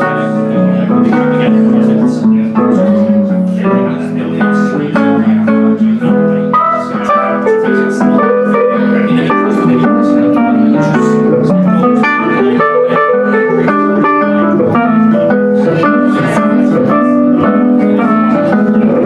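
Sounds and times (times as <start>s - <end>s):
guitar-led band playing: 0.0s - 19.0s.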